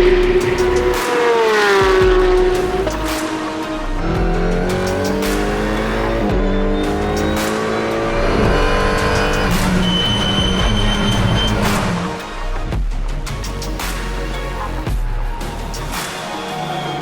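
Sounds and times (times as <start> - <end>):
racing engine accelerating: 0.0 - 12.3
background music: 0.0 - 17.0.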